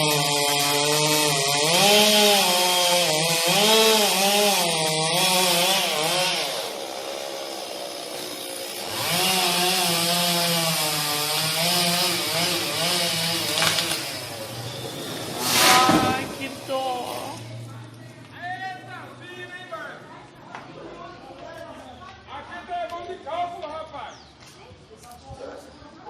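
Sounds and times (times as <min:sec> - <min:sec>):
chainsaw cutting through tree: 0:00.0 - 0:17.6.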